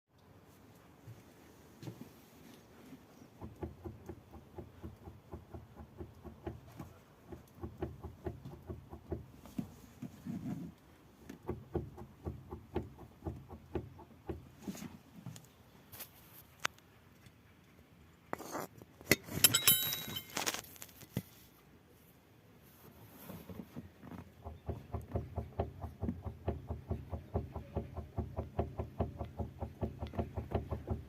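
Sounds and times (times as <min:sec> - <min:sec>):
shock absorber mount knocking: 0:03.4 - 0:09.7, 0:11.3 - 0:14.6, 0:24.1 - 0:31.0.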